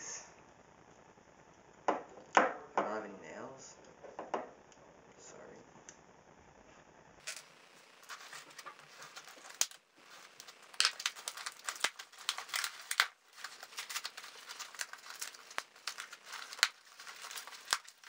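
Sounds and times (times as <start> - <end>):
packaging crinkling and tearing: 7.2 - 18.0
packaging sharp crackles: 7.2 - 18.0.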